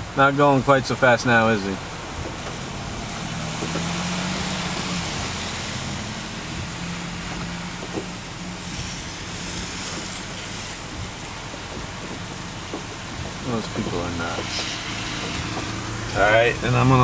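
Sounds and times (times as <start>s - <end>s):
car engine running: 0.0s - 17.0s
rain hissing: 0.0s - 17.0s.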